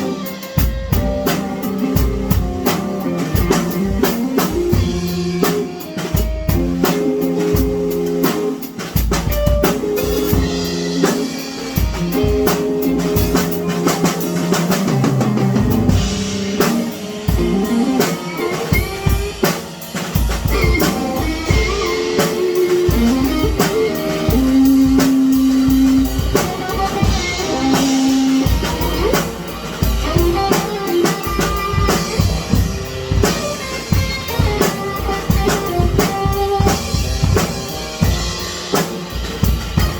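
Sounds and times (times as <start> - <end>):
drum kit playing: 0.0 - 39.9
guitar held notes: 20.3 - 38.2.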